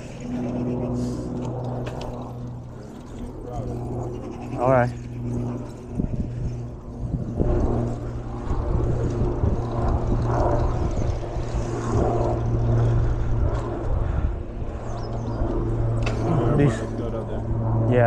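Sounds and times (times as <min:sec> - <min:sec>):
steady low hum: 0:00.0 - 0:18.0
wind buffeting microphone: 0:00.0 - 0:18.0.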